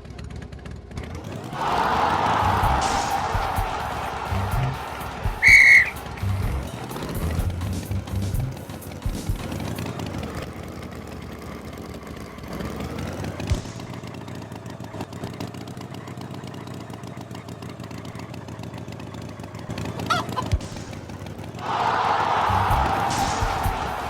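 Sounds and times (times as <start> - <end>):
short honk-like call: 5.3 - 6.2
motor running steadily: 6.0 - 21.2.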